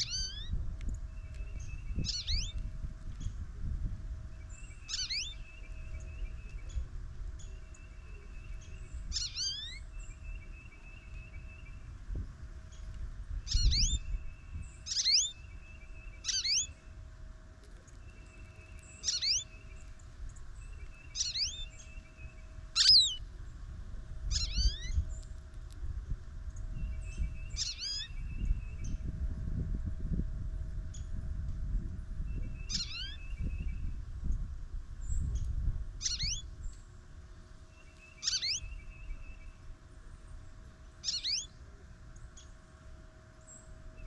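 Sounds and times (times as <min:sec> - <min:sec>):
goldfinch calling: 0:00.0 - 0:00.5, 0:01.6 - 0:02.6, 0:04.7 - 0:05.8, 0:09.0 - 0:09.8, 0:13.5 - 0:14.1, 0:14.8 - 0:15.4, 0:16.2 - 0:16.7, 0:19.0 - 0:19.7, 0:21.0 - 0:21.8, 0:22.8 - 0:23.2, 0:24.3 - 0:25.0, 0:27.5 - 0:28.2, 0:32.7 - 0:33.2, 0:36.0 - 0:36.5, 0:37.9 - 0:39.2, 0:41.0 - 0:41.5.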